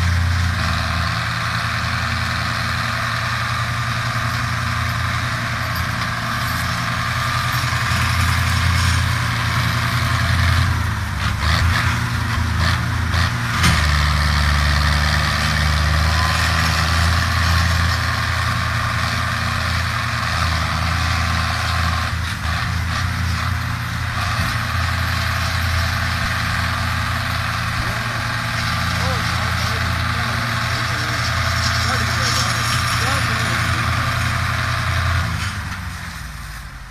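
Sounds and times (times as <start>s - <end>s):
tractor engine running: 0.0s - 36.9s.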